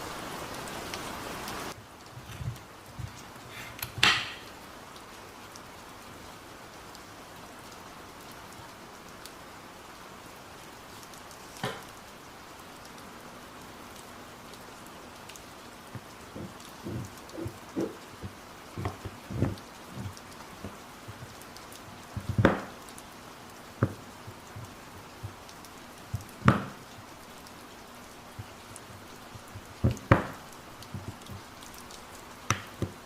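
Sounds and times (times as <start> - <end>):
steady rain: 0.0 - 33.0
kitchenware clinking: 4.0 - 4.5
soft knocks: 16.4 - 20.8.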